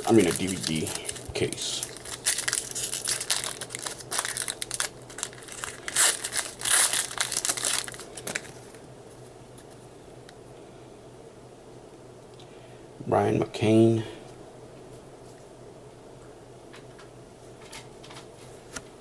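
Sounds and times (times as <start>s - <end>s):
foil wrapper tearing and crinkling: 0.0s - 8.9s.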